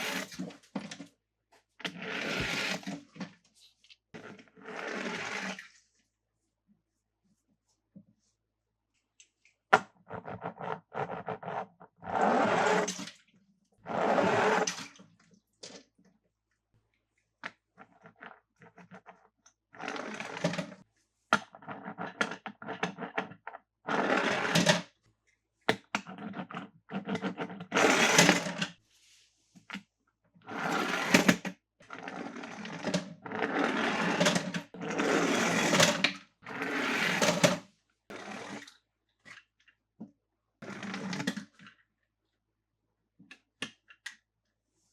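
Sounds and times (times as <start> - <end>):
toy cars clicking and scraping: 0.0 - 0.5.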